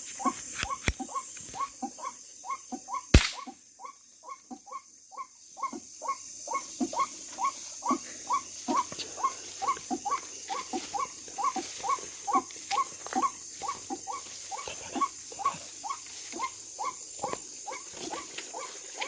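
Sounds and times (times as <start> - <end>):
air rifle shot: 3.1 - 3.5
waterhen calling: 5.6 - 19.0.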